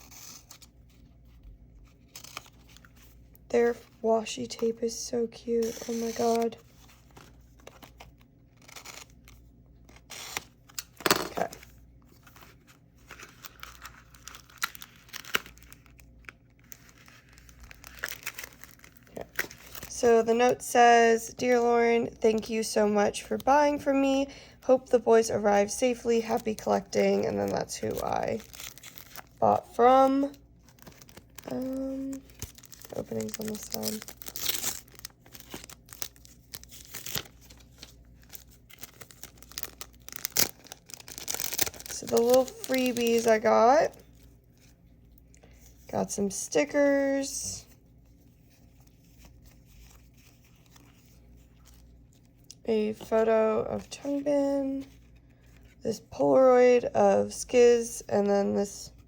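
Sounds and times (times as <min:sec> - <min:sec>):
packaging crinkling and rustling: 0:05.5 - 0:20.6, 0:25.6 - 0:45.9, 0:47.6 - 0:53.1.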